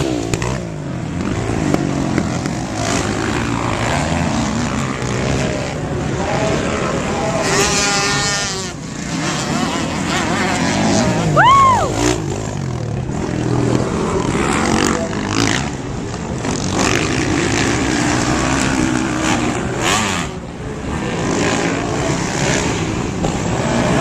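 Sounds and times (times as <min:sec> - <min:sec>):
dirt bike engines revving: 0:00.0 - 0:24.0.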